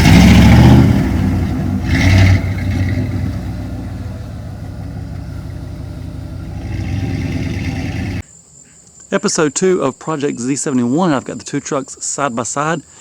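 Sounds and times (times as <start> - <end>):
pickup truck engine revving: 0.0 - 8.2.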